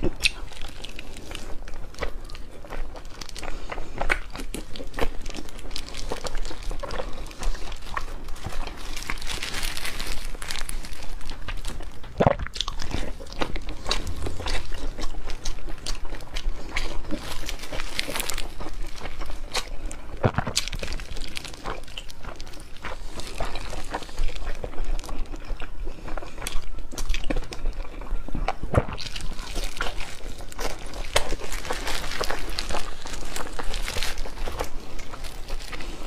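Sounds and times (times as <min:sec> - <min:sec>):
chewing with wet mouth clicks: 0:00.0 - 0:09.2
plastic glove crinkling: 0:00.2 - 0:25.5, 0:28.8 - 0:36.0.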